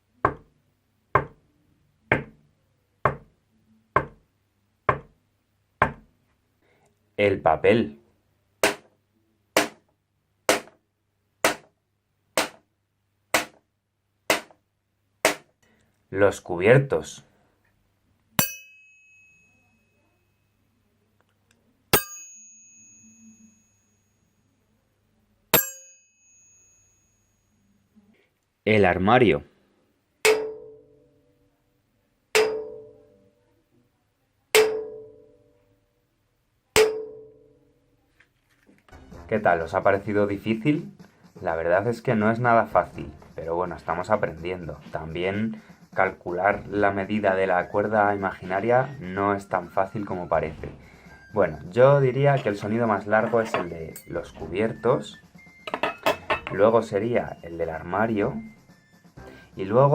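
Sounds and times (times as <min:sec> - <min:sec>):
paper being struck: 0:08.6 - 0:08.9, 0:09.6 - 0:09.8, 0:10.5 - 0:10.8, 0:11.4 - 0:11.7, 0:12.4 - 0:12.6, 0:13.3 - 0:13.6, 0:14.3 - 0:14.6, 0:15.2 - 0:15.5.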